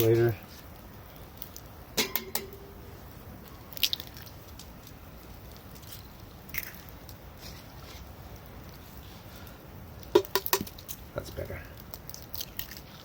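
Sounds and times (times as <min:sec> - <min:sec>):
eggshell cracking: 0:03.6 - 0:04.9, 0:05.7 - 0:07.2, 0:11.7 - 0:12.9.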